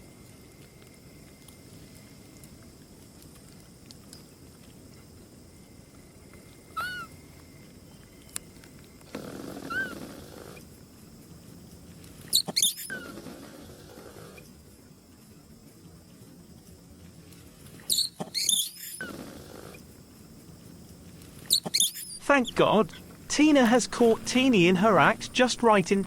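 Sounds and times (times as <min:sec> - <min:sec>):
rustle: 0:00.0 - 0:22.2
monkey high-pitched squeals: 0:06.8 - 0:07.1, 0:09.6 - 0:10.1, 0:12.3 - 0:13.2, 0:17.8 - 0:19.2, 0:21.5 - 0:22.2
monkey squeaking: 0:09.7 - 0:10.0, 0:12.3 - 0:13.1, 0:17.8 - 0:19.1, 0:21.5 - 0:22.6.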